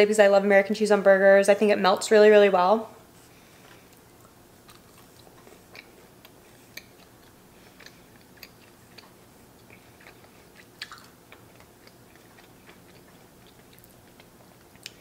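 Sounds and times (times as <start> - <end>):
close-miked chewing: 3.8 - 15.0
mouth clicks and smacks: 4.6 - 15.0.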